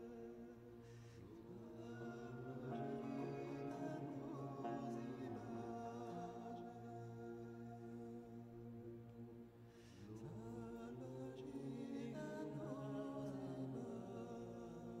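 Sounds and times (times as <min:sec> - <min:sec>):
chant-like vocal tones: 0:00.0 - 0:15.0.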